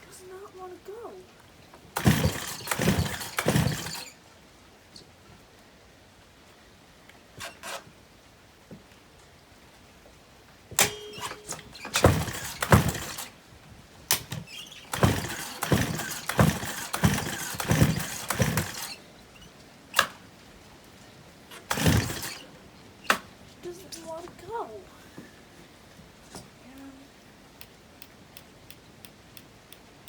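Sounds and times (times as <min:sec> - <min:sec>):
engine turning over: 0:01.9 - 0:04.2, 0:10.8 - 0:13.4, 0:14.1 - 0:20.2, 0:21.5 - 0:22.6
chainsaw recoil rope pulls: 0:02.0 - 0:04.2, 0:07.4 - 0:07.9, 0:10.8 - 0:13.4, 0:14.1 - 0:20.2, 0:21.5 - 0:23.2.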